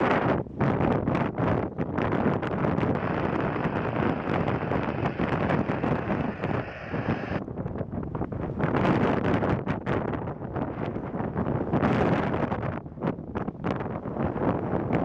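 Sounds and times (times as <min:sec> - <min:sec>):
wind buffeting microphone: 0:00.0 - 0:15.0
rushing noise: 0:02.8 - 0:07.4.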